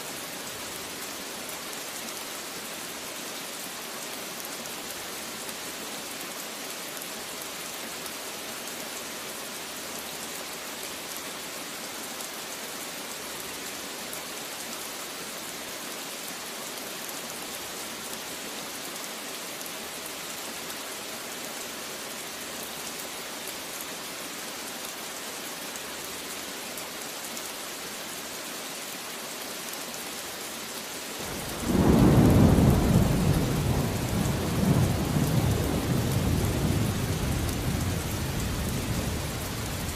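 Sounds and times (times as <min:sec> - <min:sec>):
steady rain falling: 0:00.0 - 0:39.9
low rumble of thunder: 0:31.3 - 0:39.9.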